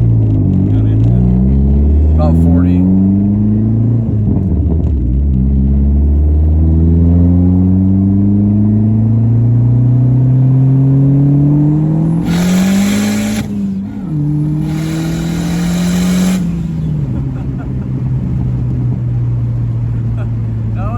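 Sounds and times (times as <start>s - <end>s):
turbocharged car engine accelerating: 0.0s - 20.9s
loud turbo hiss: 12.2s - 16.9s.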